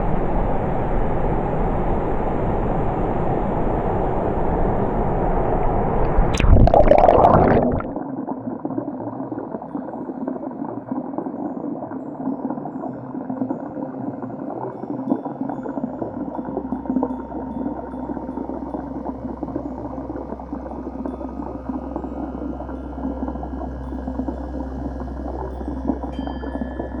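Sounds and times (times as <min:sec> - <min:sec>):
dull water murmur: 0:00.0 - 0:27.0
muffled rushing water: 0:02.4 - 0:08.0
water splashing: 0:06.1 - 0:08.0.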